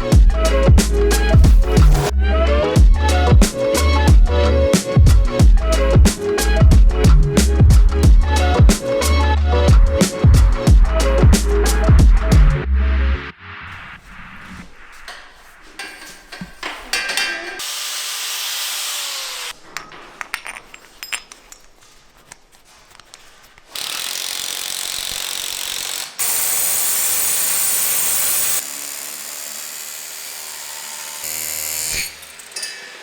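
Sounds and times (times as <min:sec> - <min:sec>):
loud power tool: 0:17.6 - 0:19.6, 0:23.8 - 0:33.0
tool clicking and ratcheting: 0:23.7 - 0:26.8.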